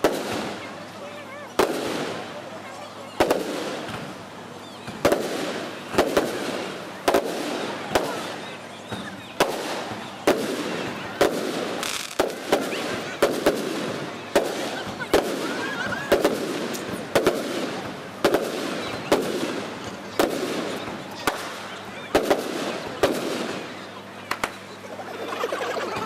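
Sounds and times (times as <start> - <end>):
firework crackling: 0.0 - 24.9
firework shells bursting: 9.4 - 23.7.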